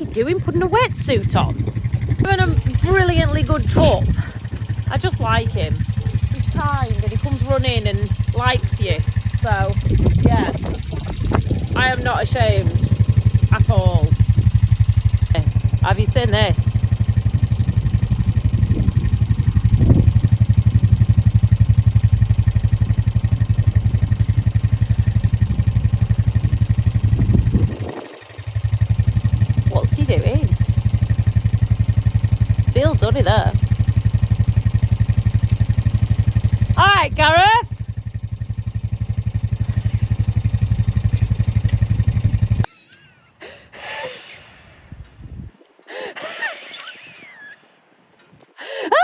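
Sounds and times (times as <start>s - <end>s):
quad bike engine running: 0.0s - 42.7s.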